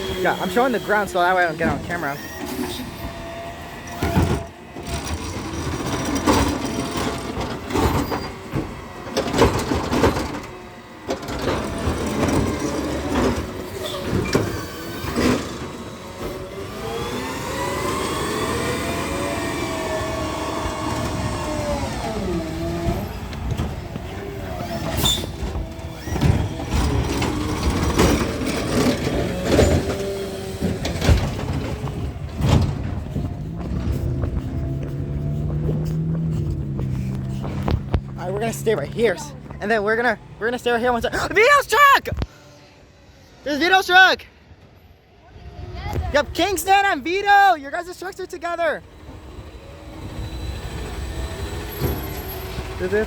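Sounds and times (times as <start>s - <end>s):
garbage truck engine revving: 0.0s - 40.4s, 48.8s - 53.0s
garbage truck clanks and knocks: 3.8s - 16.4s, 19.8s - 34.0s.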